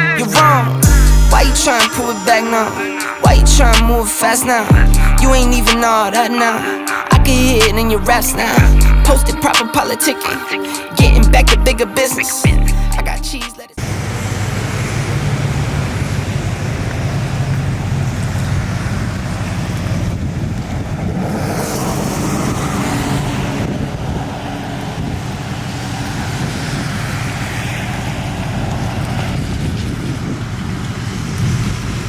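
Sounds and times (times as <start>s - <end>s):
vehicle engine running: 0.0s - 2.4s, 3.2s - 6.5s, 7.1s - 9.5s, 12.5s - 32.0s
continuous rushing noise: 13.8s - 32.0s.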